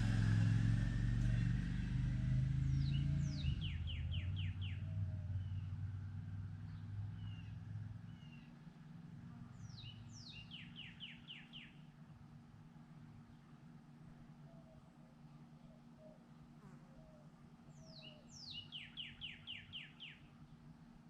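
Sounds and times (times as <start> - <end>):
songbird singing: 0.0 - 12.3, 13.0 - 21.0
low vehicle rumble: 0.0 - 14.4.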